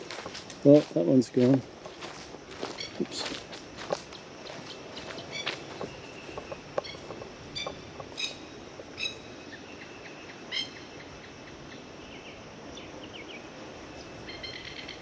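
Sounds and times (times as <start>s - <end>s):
lapwing alarm calls: 2.6s - 3.6s, 4.4s - 11.2s, 14.0s - 15.0s.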